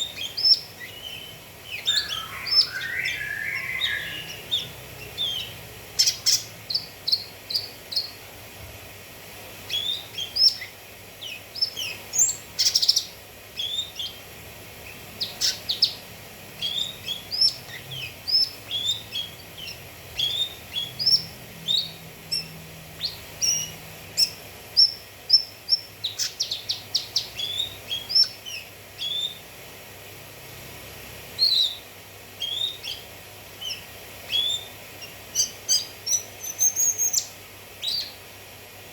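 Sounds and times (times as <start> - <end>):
bird chirping and trilling: 0.0 - 8.2, 9.6 - 29.5, 31.4 - 38.2.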